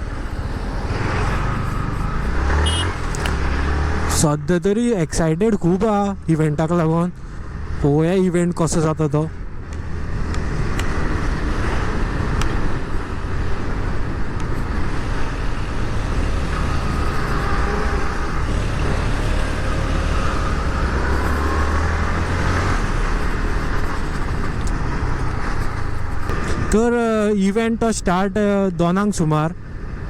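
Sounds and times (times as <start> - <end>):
motorcycle running: 0.0 - 4.4, 9.6 - 27.2
surrounding traffic: 0.0 - 30.0
wind rushing over microphone: 9.4 - 26.9.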